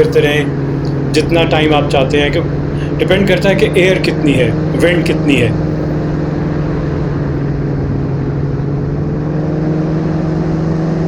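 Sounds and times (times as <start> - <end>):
engine and propeller drone: 0.0 - 11.0.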